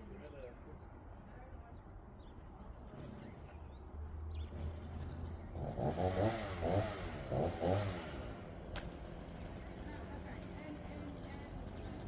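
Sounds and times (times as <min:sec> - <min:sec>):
chainsaw running: 0:05.7 - 0:12.0.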